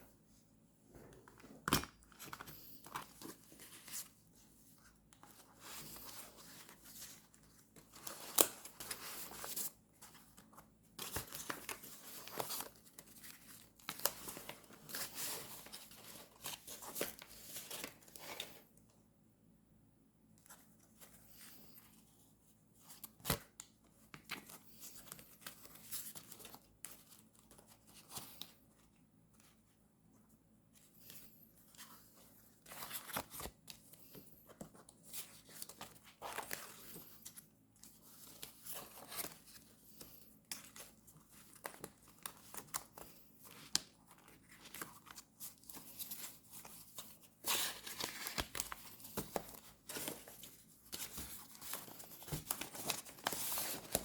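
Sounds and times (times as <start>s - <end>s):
paper and stickers rustling: 1.0s - 18.6s, 30.8s - 54.0s.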